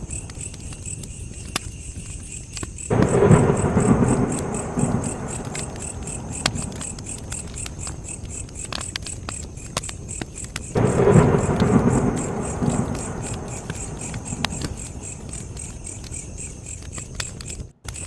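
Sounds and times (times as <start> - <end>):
campfire crackling and popping: 0.0 - 18.0
crickets chirping: 0.0 - 18.0
loud low rumble: 2.9 - 6.8.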